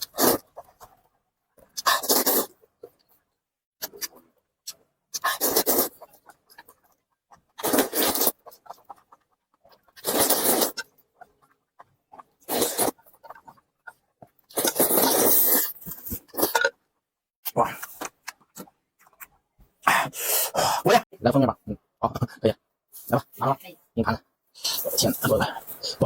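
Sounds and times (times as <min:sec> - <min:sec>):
person slurping noodles: 0:00.0 - 0:01.0, 0:01.6 - 0:02.6, 0:05.1 - 0:16.7, 0:19.8 - 0:21.0
wet chewing clicks: 0:03.8 - 0:16.7, 0:17.8 - 0:19.4.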